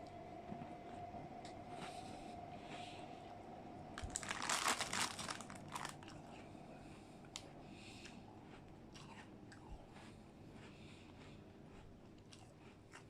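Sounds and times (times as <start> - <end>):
soft chewing: 0.5 - 3.2, 4.0 - 13.0
biscuit biting and crunching: 7.3 - 13.0.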